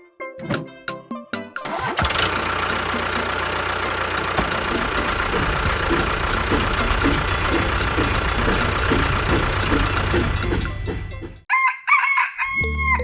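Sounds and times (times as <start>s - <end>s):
short music: 1.7s - 11.4s
engine idling: 1.7s - 11.5s.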